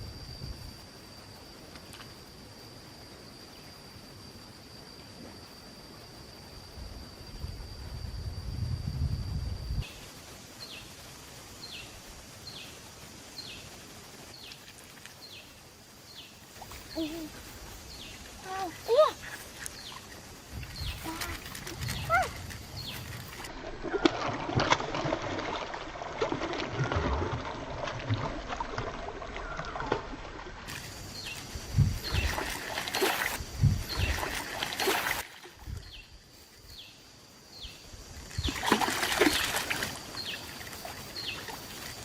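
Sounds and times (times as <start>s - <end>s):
water splashing and trickling: 12.2s - 36.4s, 38.1s - 42.0s.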